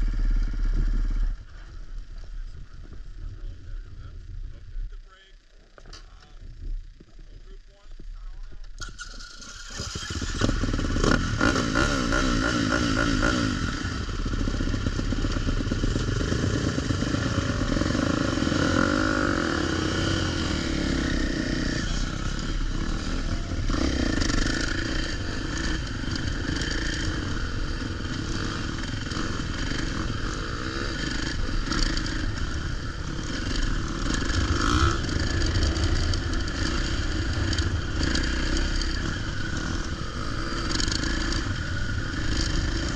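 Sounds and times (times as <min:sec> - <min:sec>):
dirt bike engine revving: 0:08.8 - 0:42.9
track noise: 0:13.7 - 0:42.9.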